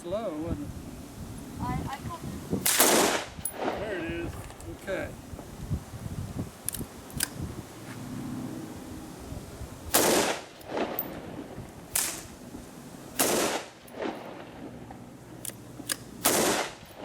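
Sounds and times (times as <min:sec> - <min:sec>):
rifle shots: 0:02.6 - 0:03.8, 0:09.9 - 0:11.2, 0:11.9 - 0:12.3, 0:13.2 - 0:14.7, 0:15.9 - 0:17.0
gunshot echo: 0:02.7 - 0:03.9, 0:09.9 - 0:11.2, 0:13.2 - 0:14.5, 0:16.2 - 0:16.8.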